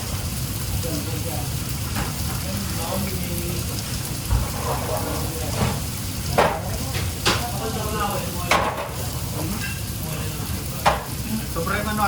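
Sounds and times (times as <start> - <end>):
food sizzling: 0.0 - 12.0
utensils clanking on pans: 1.8 - 3.1, 4.2 - 10.1, 10.7 - 11.5.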